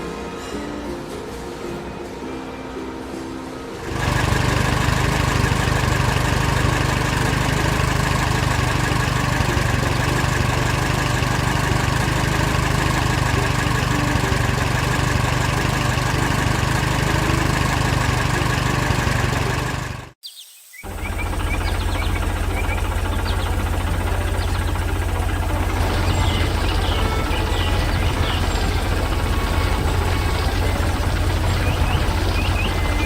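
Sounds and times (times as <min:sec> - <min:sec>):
engine running steadily: 0:03.7 - 0:20.2, 0:20.8 - 0:33.0.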